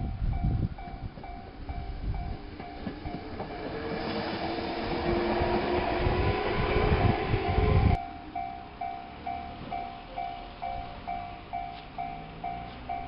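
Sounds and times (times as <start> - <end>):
level-crossing bell ringing: 0.0 - 4.0, 8.0 - 13.0
electric train rumble: 0.0 - 13.0.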